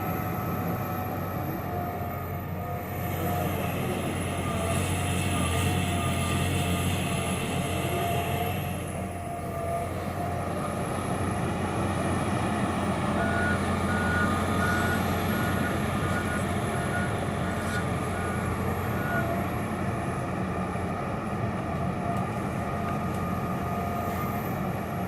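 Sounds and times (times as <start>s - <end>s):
excavator diesel engine running: 0.0s - 25.0s
reversing alarm beeping: 12.8s - 19.5s.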